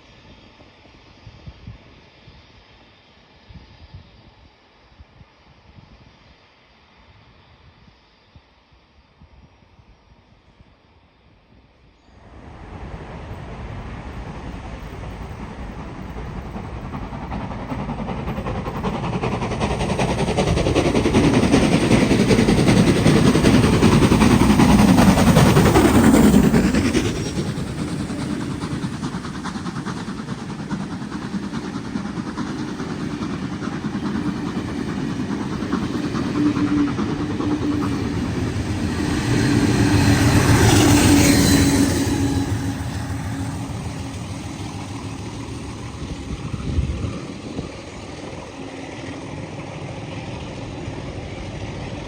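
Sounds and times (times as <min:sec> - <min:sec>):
train passing: 0:11.8 - 0:52.0.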